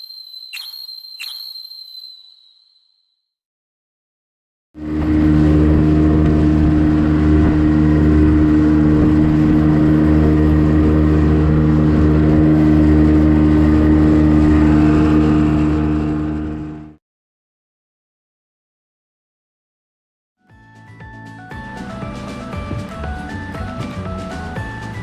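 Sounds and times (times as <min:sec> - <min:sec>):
engine running steadily: 0:04.8 - 0:16.9, 0:21.5 - 0:25.0.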